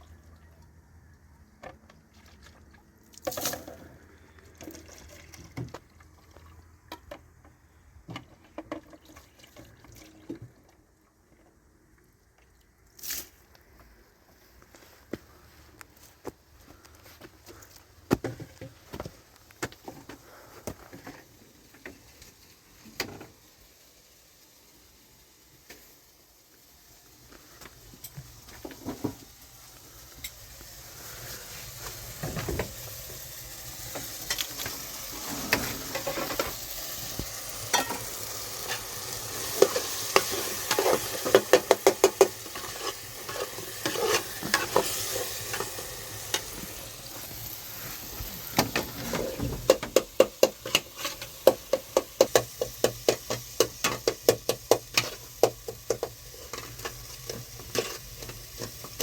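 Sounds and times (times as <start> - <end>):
food sizzling in a pan: 21.4 - 59.0
spoon scraping and knocking a pan: 37.7 - 46.8, 48.6 - 59.0.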